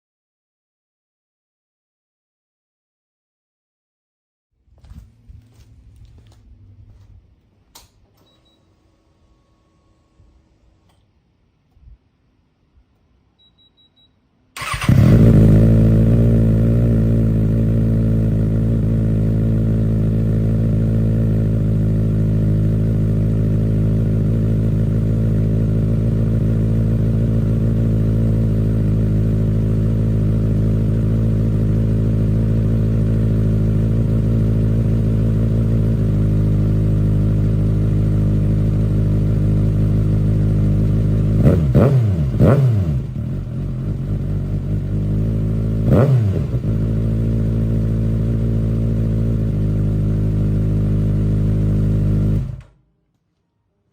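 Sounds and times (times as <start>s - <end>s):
short beep: 8.2s - 10.7s, 13.3s - 14.3s
motorcycle engine starting and idling: 14.6s - 52.8s.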